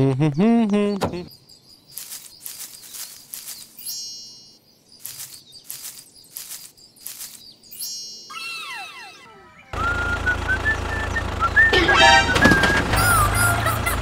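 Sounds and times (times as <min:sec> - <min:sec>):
faint high chirping: 0:00.3 - 0:09.9.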